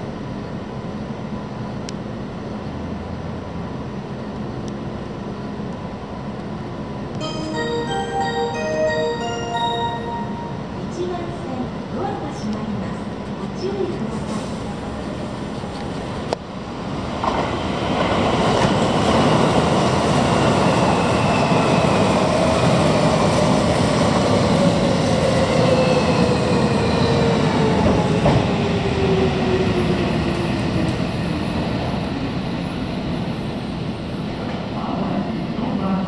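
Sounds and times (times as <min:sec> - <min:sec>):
train wheels rumbling on rails: 0:10.9 - 0:35.9.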